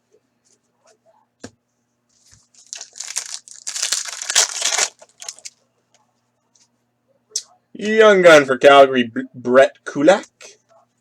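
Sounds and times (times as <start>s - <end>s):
foil wrapper tearing and crinkling: 2.5s - 5.5s.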